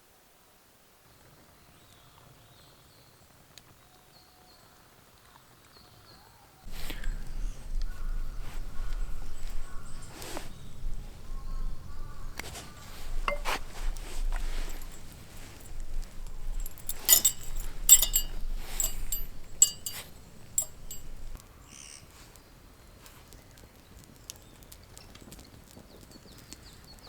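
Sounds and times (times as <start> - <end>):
dishes and utensils clinking: 12.4 - 21.4.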